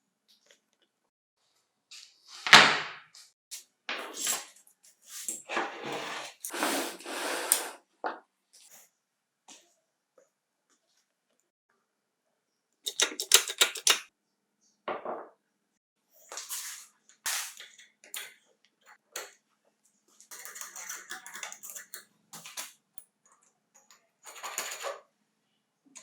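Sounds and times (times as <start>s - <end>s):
metal parts clattering: 12.9s - 14.0s
metal parts clicking: 12.9s - 14.1s.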